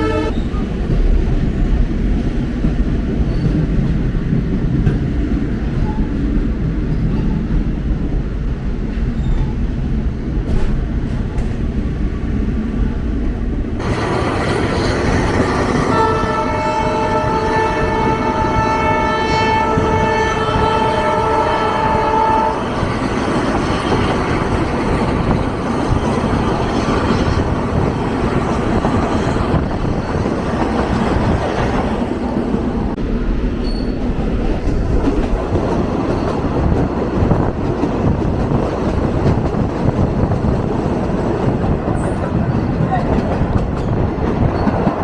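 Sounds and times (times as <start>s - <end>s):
train horn: 0.0s - 0.4s, 15.7s - 22.9s
moving train running noise: 0.0s - 45.0s.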